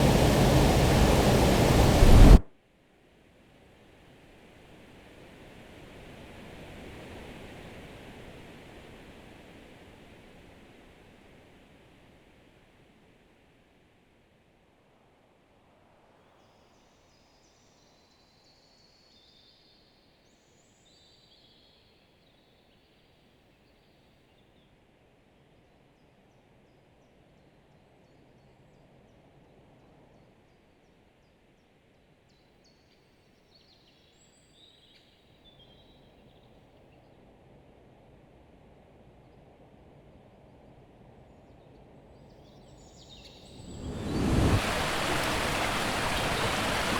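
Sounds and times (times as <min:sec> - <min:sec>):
distant waterfall rushing: 0:00.0 - 0:02.4, 0:43.4 - 0:46.9
songbird chirping: 0:42.8 - 0:46.9.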